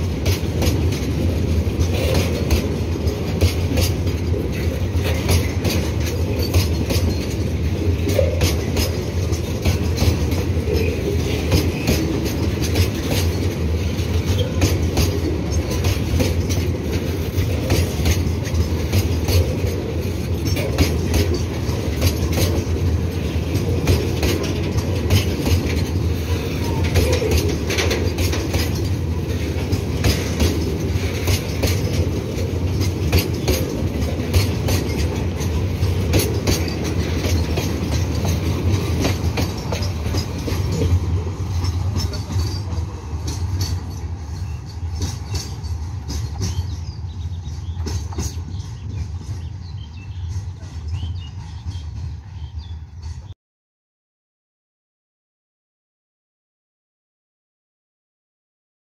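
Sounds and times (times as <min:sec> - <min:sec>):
wheels clacking over rail joints: 0:00.0 - 0:53.3
freight train rumbling past: 0:00.0 - 0:53.4.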